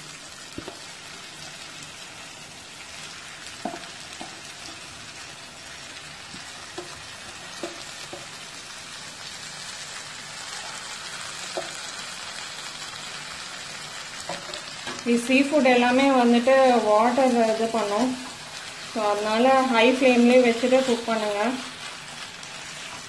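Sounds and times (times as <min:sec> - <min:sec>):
food sizzling in a pan: 0:00.0 - 0:23.0.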